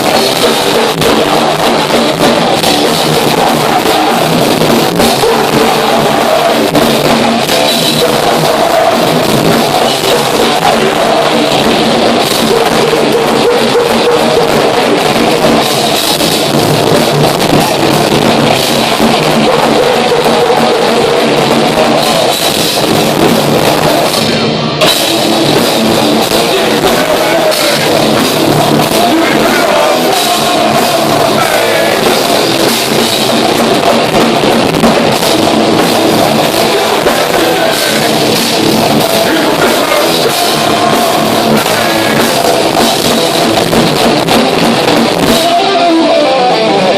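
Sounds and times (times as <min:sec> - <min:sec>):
distorted guitars: 0:00.0 - 0:46.9
heavy metal band playing live: 0:00.0 - 0:46.9
pounding drum kit: 0:00.0 - 0:46.9.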